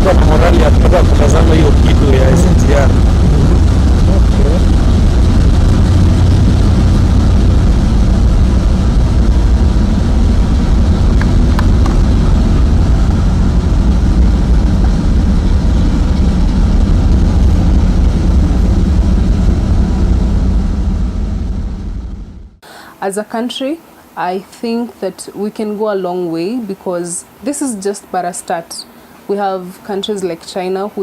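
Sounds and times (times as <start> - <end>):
train rumbling: 0.0 - 22.6.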